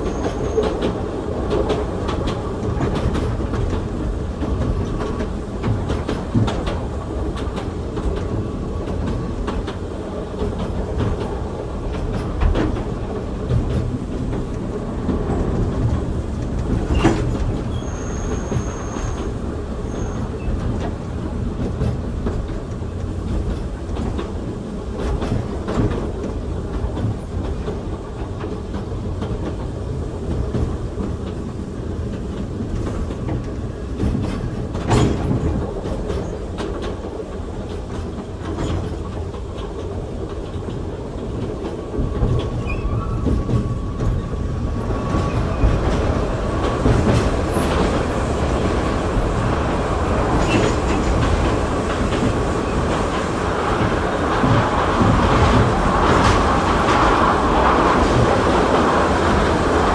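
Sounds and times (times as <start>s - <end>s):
clicks over rail joints: 0.0s - 59.9s
wheels rumbling on rail: 0.0s - 59.9s
faint thin squeal: 17.7s - 19.3s, 19.9s - 20.5s.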